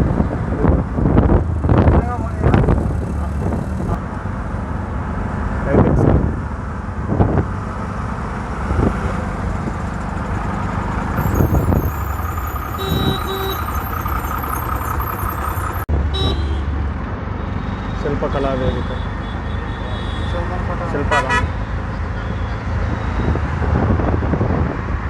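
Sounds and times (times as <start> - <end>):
traffic rumble: 0.0 - 25.0
short horn toot: 11.2 - 14.0, 16.2 - 16.7.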